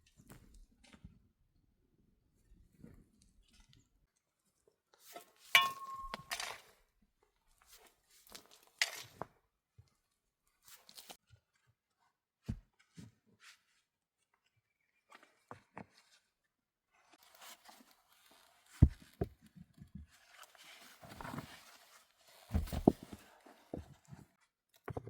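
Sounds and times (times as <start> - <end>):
objects knocking and clinking: 5.6 - 6.6.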